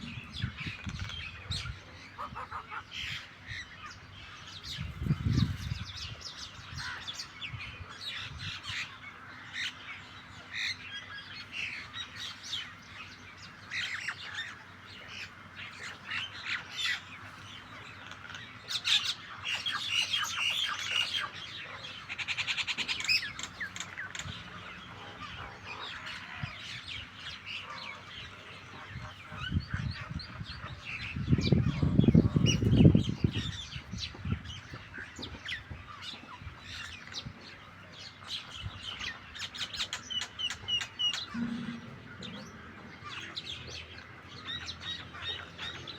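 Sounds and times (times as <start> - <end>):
low rumble: 0.0 - 0.8, 41.2 - 43.8
birds squawking and chirping: 0.0 - 45.9.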